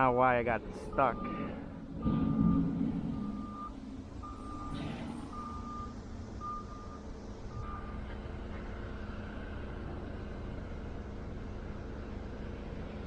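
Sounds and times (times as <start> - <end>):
reversing alarm beeping: 0.9 - 8.0
low rumble: 1.1 - 7.6.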